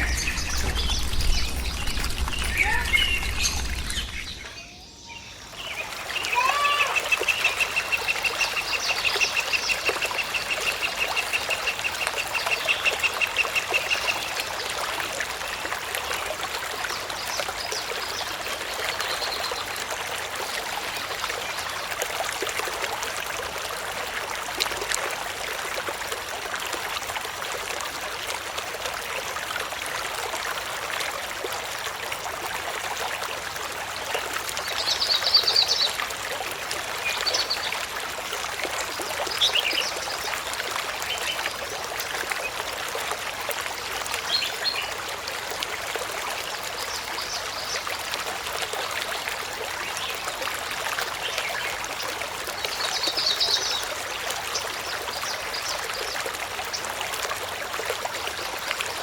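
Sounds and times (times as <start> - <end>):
running water hissing: 0.0 - 4.6
birds chirping and trilling: 0.0 - 6.7.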